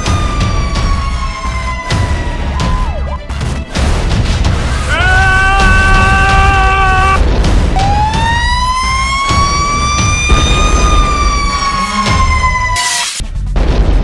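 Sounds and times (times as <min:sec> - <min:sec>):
siren wailing: 0:00.0 - 0:03.1, 0:07.8 - 0:13.1.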